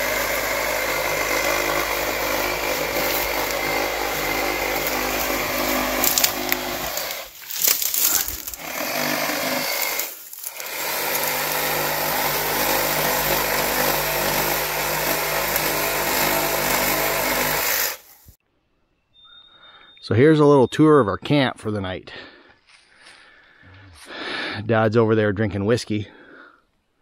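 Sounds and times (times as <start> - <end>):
small engine running: 0.0 - 7.3, 8.0 - 18.1.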